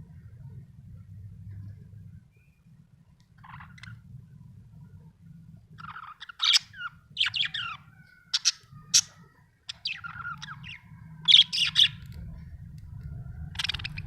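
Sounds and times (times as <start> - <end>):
budgerigar chirping: 5.8 - 12.0, 13.5 - 14.0.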